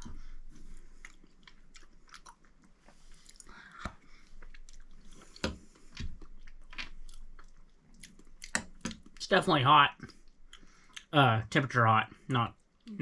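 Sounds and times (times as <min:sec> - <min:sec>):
person chewing wet food: 0:00.0 - 0:09.2, 0:10.0 - 0:11.1.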